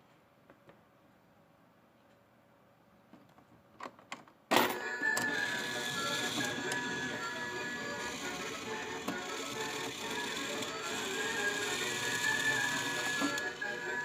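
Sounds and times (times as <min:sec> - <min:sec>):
mechanical whirring: 0:04.8 - 0:14.0.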